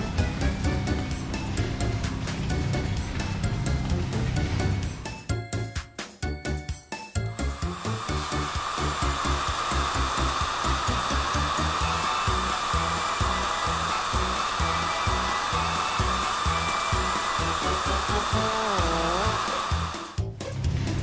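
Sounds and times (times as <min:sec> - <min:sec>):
background music with steady beat: 0:00.0 - 0:21.0
electric buffing disc whirring: 0:07.4 - 0:20.2.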